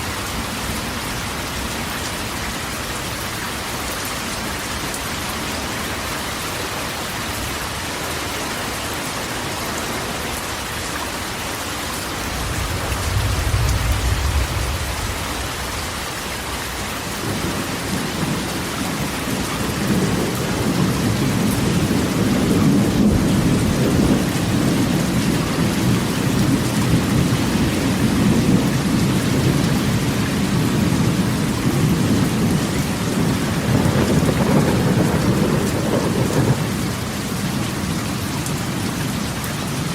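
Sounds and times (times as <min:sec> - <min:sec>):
heavy rain on a metal roof: 0:00.0 - 0:39.9
rumble of thunder: 0:12.1 - 0:39.2.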